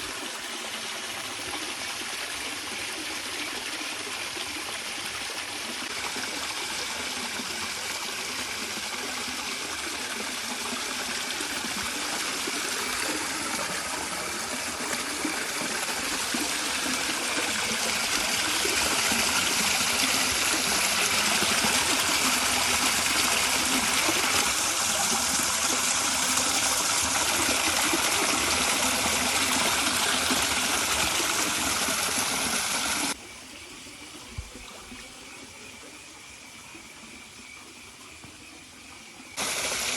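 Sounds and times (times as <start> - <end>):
river water flowing: 3.9 - 33.3, 39.4 - 39.9.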